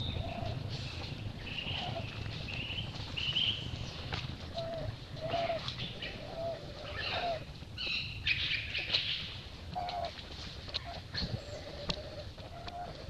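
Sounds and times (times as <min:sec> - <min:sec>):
high bird calls: 0:00.0 - 0:10.1
low steady rumble: 0:00.0 - 0:13.0.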